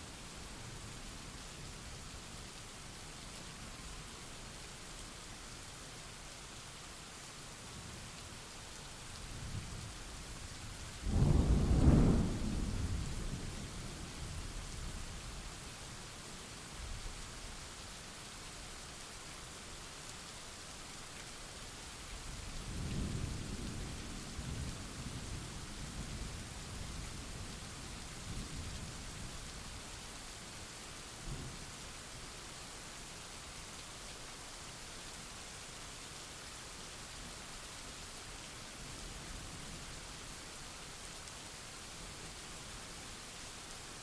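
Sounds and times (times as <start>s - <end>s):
rain falling: 0.0s - 44.0s
faint thunder rumble: 11.0s - 14.6s
thunder rumbling: 11.1s - 12.8s.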